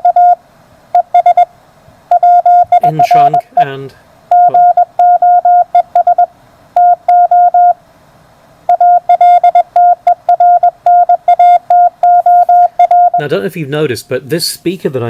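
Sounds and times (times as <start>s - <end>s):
morse code beeps: 0.0s - 0.4s, 1.0s - 1.5s, 2.1s - 7.8s, 8.7s - 13.3s.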